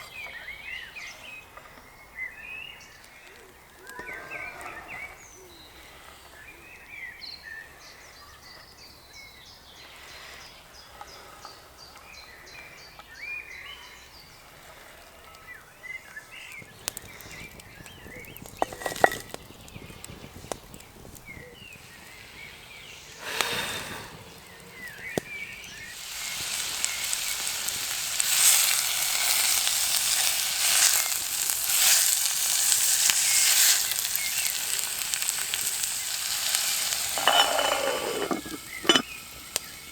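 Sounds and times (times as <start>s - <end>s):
small birds chirping: 0.0s - 31.6s, 32.8s - 39.9s
food sizzling in hot oil: 22.1s - 39.9s.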